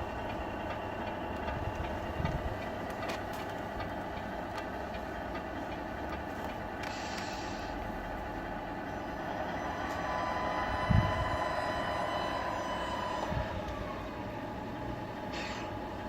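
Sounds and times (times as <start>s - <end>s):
faint whine: 8.8s - 14.6s
toy truck mechanical drone: 9.4s - 14.8s.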